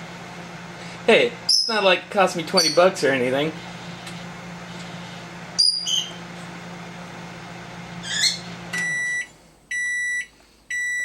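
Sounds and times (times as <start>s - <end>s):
microwave oven humming: 0.0s - 11.0s
pet birds chirping: 1.5s - 1.8s, 5.6s - 6.2s, 8.0s - 8.5s
microwave beeps: 2.5s - 3.0s, 5.5s - 6.3s, 7.7s - 11.0s.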